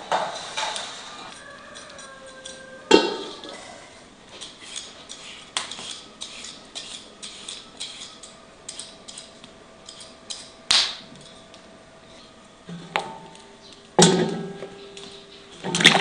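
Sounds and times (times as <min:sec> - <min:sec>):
metal utensils clinking: 0:00.6 - 0:03.6.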